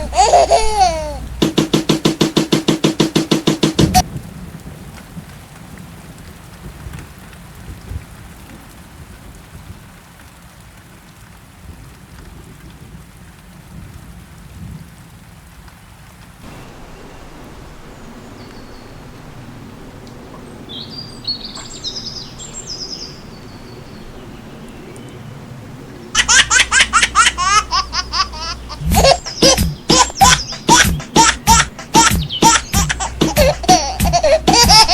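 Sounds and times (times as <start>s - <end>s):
baby laughing loudly: 0.0s - 2.0s, 26.2s - 34.9s
steady rain: 0.0s - 34.9s
high bird chirps: 28.5s - 31.2s, 32.0s - 33.0s.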